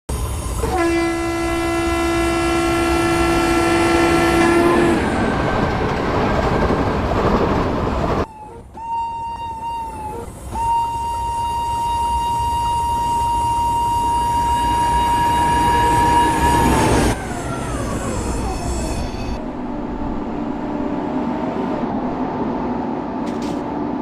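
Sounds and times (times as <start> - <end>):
train running: 0.1 - 24.0
train horn: 0.6 - 5.2, 8.4 - 17.2.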